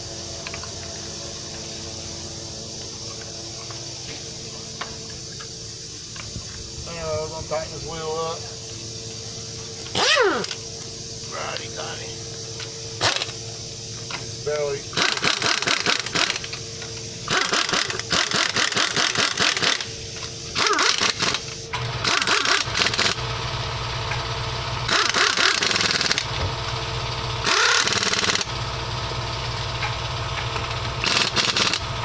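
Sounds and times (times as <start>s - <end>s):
engine idling: 0.0s - 32.0s
rapid clicking: 29.8s - 31.9s.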